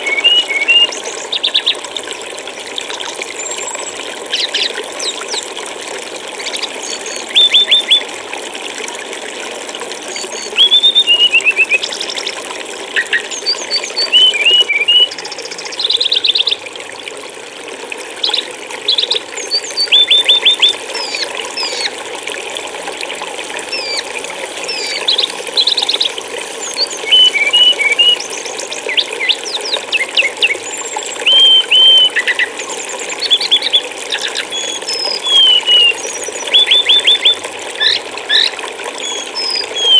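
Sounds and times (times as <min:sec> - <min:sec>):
songbird chirping and trilling: 0:00.0 - 0:01.8, 0:06.6 - 0:08.0, 0:10.1 - 0:12.2, 0:13.0 - 0:16.6, 0:18.2 - 0:21.9, 0:26.7 - 0:30.6, 0:31.2 - 0:32.5, 0:33.2 - 0:39.9
trickle of flowing water: 0:00.0 - 0:39.9.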